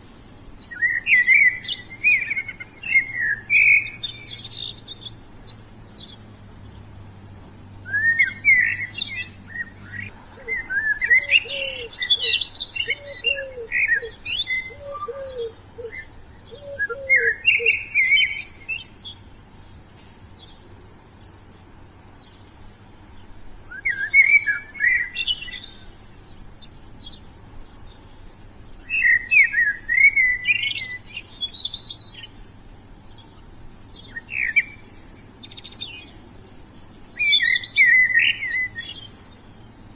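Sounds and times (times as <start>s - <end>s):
songbirds singing: 0.0s - 39.9s
steady high hiss: 0.0s - 39.9s.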